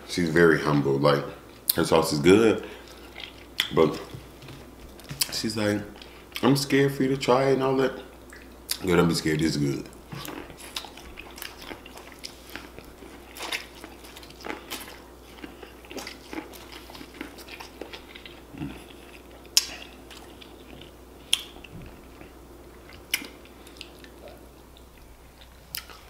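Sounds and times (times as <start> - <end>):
wet chewing with mouth clicks: 2.7 - 6.5, 8.1 - 8.9, 9.9 - 26.0
teeth biting corn: 10.1 - 22.3
lip smacks: 16.0 - 21.8, 22.9 - 24.9, 25.7 - 26.0.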